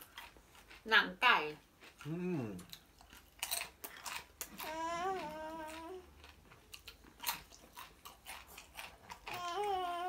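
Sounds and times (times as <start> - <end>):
crunchy chewing of fried chicken: 0.0 - 10.0
person humming: 2.1 - 2.6, 4.6 - 6.0, 9.4 - 10.0.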